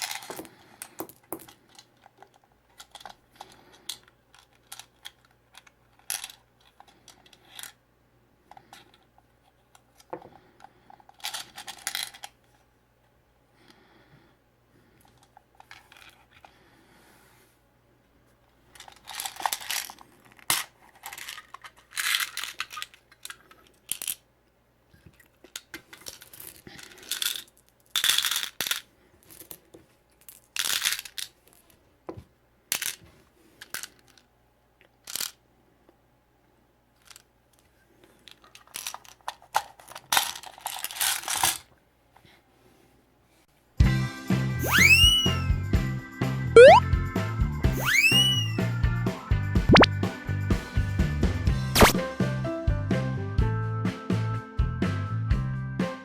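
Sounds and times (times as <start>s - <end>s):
small plastic pieces clattering: 0.0s - 3.2s, 18.8s - 24.2s, 25.1s - 29.6s, 30.2s - 31.7s, 35.0s - 35.4s, 38.2s - 41.7s.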